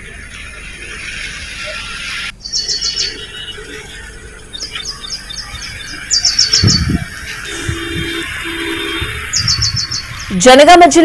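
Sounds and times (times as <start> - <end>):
steady outdoor hiss: 0.0 - 11.0
small bird chirping: 2.4 - 10.4.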